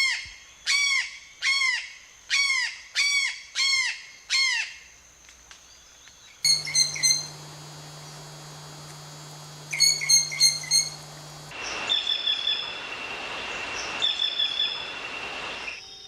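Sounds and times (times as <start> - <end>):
bird song with long high whistle: 6.2 - 16.0
short whistled bird notes: 6.5 - 7.4.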